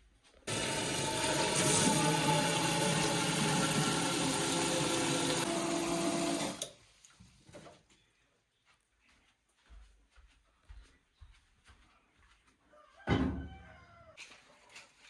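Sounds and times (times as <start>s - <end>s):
small electric motor running: 0.5s - 6.6s.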